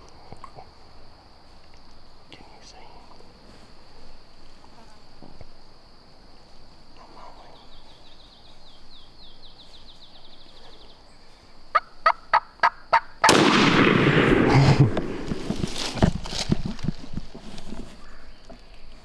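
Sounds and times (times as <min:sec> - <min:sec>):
high insect drone: 0:00.0 - 0:19.0
wild turkey calling: 0:07.0 - 0:17.0
loud blast: 0:13.3 - 0:16.5.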